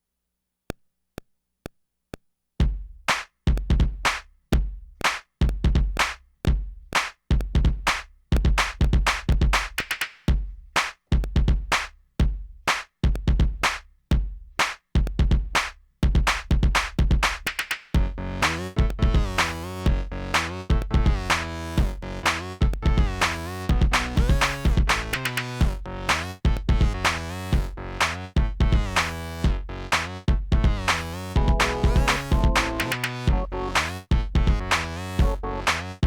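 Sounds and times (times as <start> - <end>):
looped drum beat with kick: 2.2 - 36.0
bass: 15.0 - 36.0
count-in clicks: 31.4 - 34.0
sustained pitched notes: 31.4 - 35.7.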